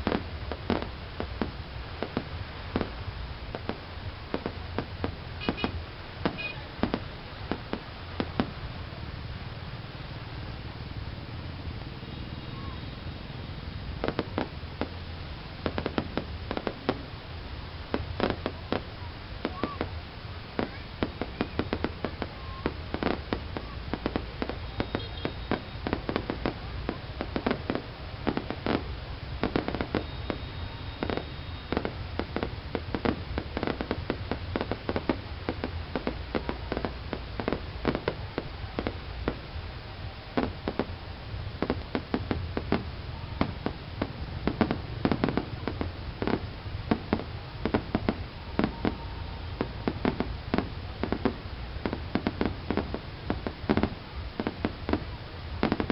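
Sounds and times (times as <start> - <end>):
fireworks bangs and crackles: 0.0 - 55.9
steady low rumble: 31.8 - 55.9.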